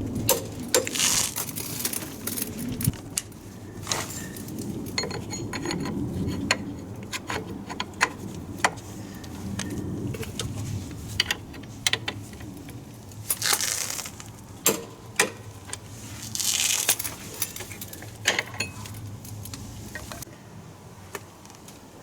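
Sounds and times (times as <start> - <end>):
small metal tools clinking: 13.2 - 15.4, 16.3 - 20.2.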